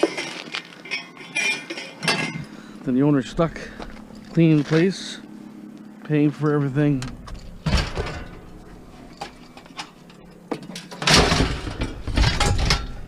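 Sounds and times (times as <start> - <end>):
scrap clattering crash: 11.0 - 13.0.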